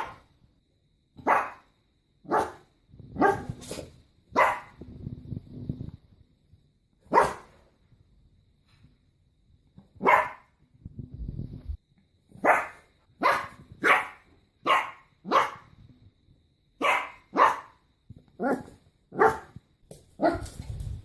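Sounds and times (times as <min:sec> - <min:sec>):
dog barking: 0:00.0 - 0:00.2, 0:01.2 - 0:03.6, 0:04.3 - 0:04.8, 0:07.1 - 0:07.6, 0:10.0 - 0:10.5, 0:12.4 - 0:15.7, 0:16.8 - 0:17.8, 0:18.4 - 0:19.6, 0:20.2 - 0:20.4.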